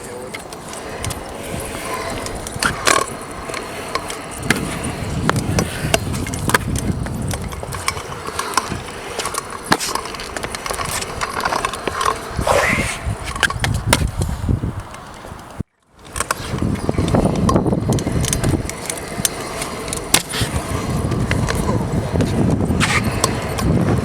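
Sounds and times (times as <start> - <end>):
small hard wheels rolling on concrete: 0.0 - 24.0
skateboard decks clacking on landing: 0.3 - 12.4.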